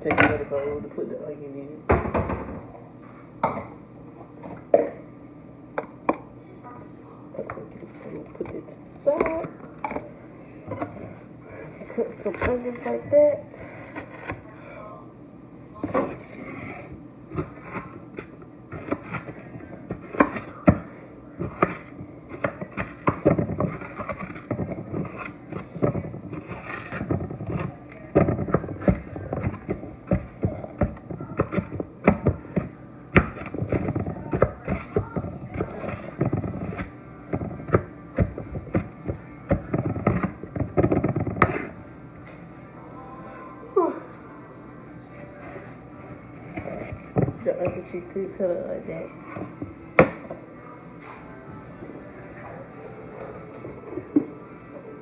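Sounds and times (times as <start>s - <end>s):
knife scraping board: 11.6s - 14.4s, 15.9s - 20.8s, 21.4s - 32.3s, 33.2s - 39.0s, 39.8s - 41.8s
knife chopping on cutting board: 15.8s - 41.7s.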